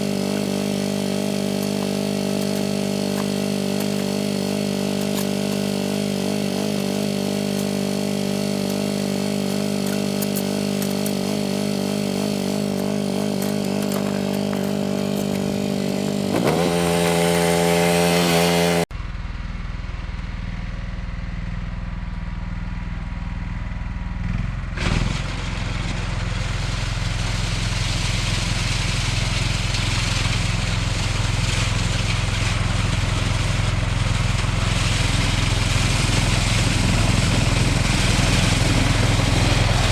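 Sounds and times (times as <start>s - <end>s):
lawn tractor engine running: 0.0s - 18.9s, 25.1s - 39.9s.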